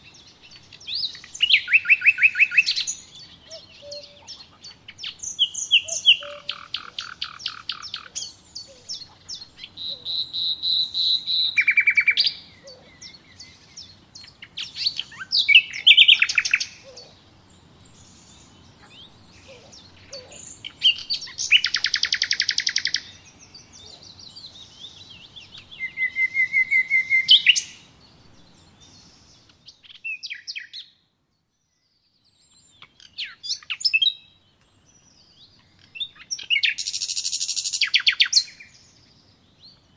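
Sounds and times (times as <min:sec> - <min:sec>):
songbirds trilling and chirping: 0:00.0 - 0:39.9.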